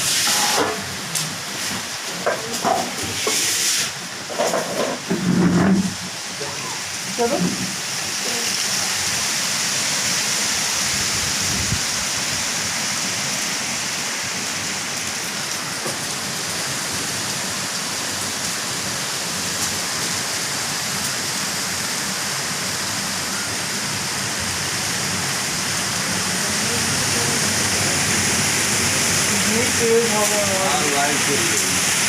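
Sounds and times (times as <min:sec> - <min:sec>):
strong wind blowing: 0:10.6 - 0:12.6.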